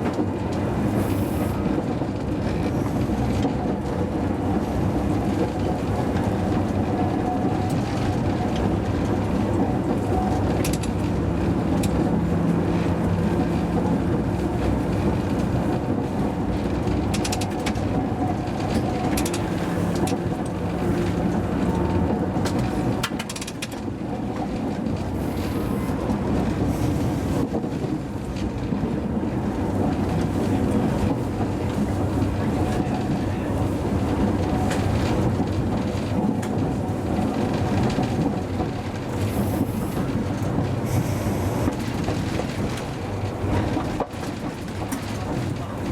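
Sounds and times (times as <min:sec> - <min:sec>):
tram wheels rumbling on rail: 0:00.0 - 0:45.9
sharp clicks and knocks: 0:16.8 - 0:21.8, 0:22.4 - 0:24.9.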